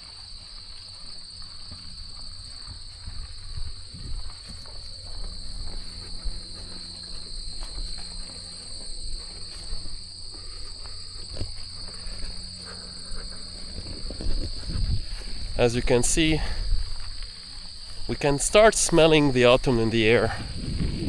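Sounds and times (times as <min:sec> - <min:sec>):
insects trilling: 0:00.0 - 0:21.0
low rumble: 0:10.8 - 0:15.6.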